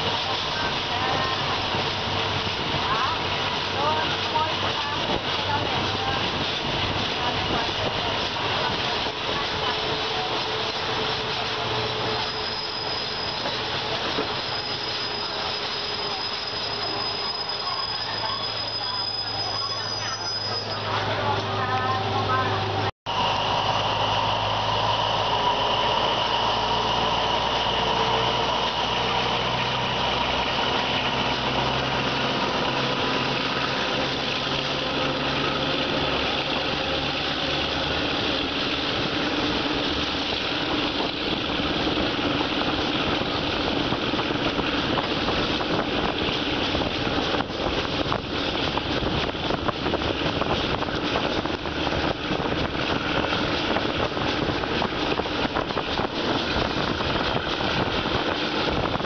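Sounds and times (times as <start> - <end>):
wheel and rail rumble: 0.0 - 59.0
low engine drone: 20.8 - 59.0.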